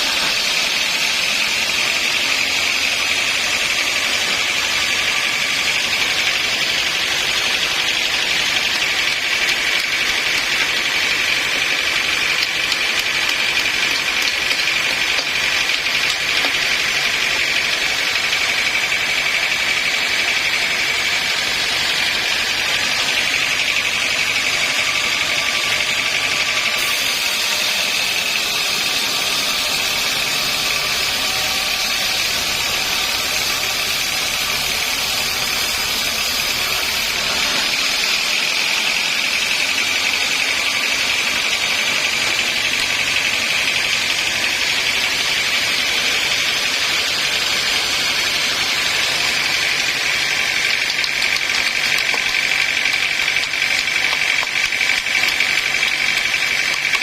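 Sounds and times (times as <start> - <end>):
harsh hiss: 0.0 - 56.7
sawmill saw whining: 0.0 - 57.0.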